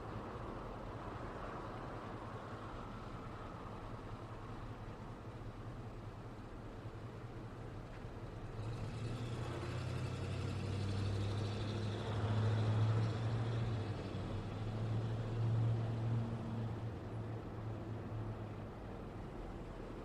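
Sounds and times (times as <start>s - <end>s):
tyre and road noise: 7.6s - 20.0s
motor vehicles passing: 8.4s - 17.5s.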